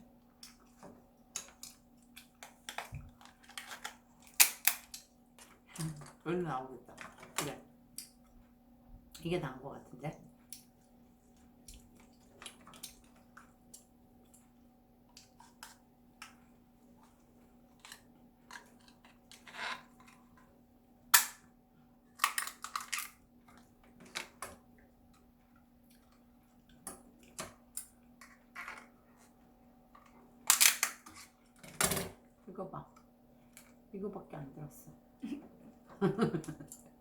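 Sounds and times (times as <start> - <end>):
lobster shell cracking: 1.4 - 5.1, 22.2 - 23.2, 30.5 - 31.1.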